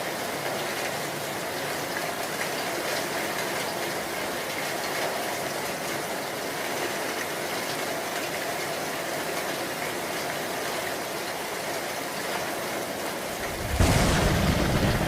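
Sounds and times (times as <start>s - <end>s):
heavy rain falling: 13.2s - 15.0s
low rumble of thunder: 13.4s - 15.0s.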